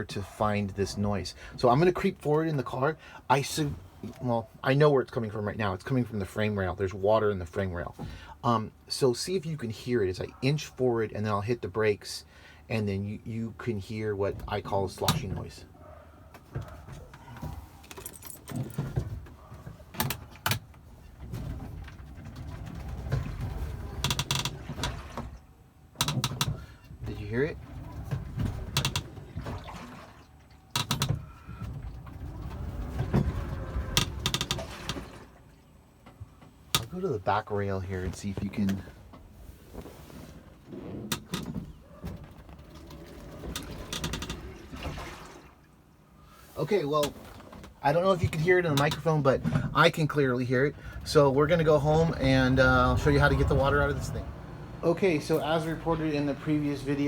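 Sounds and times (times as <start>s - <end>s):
electric car rolling rumble: 21.2s - 25.1s, 31.6s - 35.4s, 50.6s - 57.0s.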